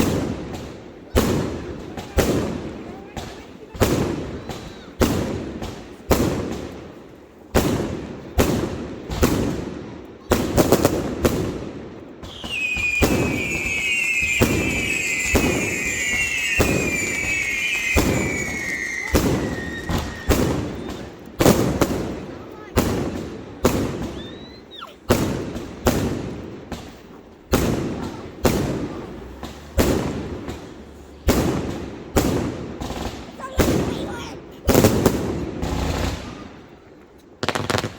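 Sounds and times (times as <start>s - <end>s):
fireworks bangs: 0.0s - 37.9s
shrill fireworks whistles: 12.2s - 22.2s, 23.6s - 25.2s.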